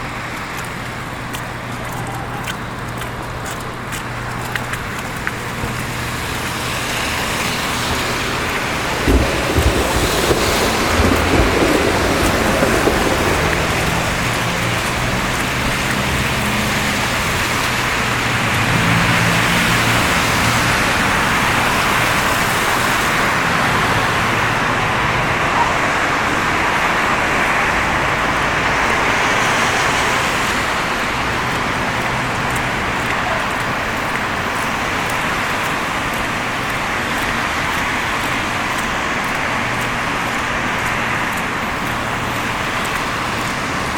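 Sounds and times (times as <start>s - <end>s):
passing engines humming: 0.0s - 43.9s
tyres hissing on wet slush: 0.0s - 43.9s.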